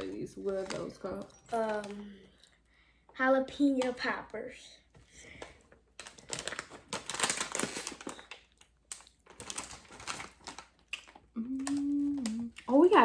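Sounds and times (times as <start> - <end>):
plastic bag crinkling: 0.0 - 2.6, 5.2 - 13.0.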